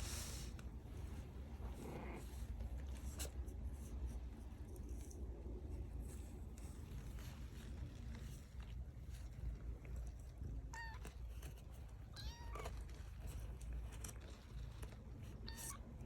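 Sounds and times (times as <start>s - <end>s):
faint low rumble: 0.0s - 16.0s
cat meowing: 12.1s - 12.8s, 15.4s - 15.8s.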